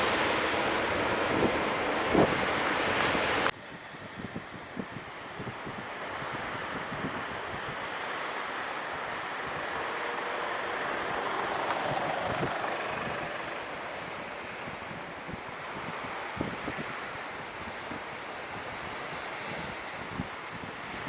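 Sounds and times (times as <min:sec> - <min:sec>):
jet airliner passing: 0:00.0 - 0:03.5, 0:06.4 - 0:15.6
surf breaking on beach: 0:00.0 - 0:03.5, 0:04.4 - 0:21.0
wind buffeting microphone: 0:00.0 - 0:21.0.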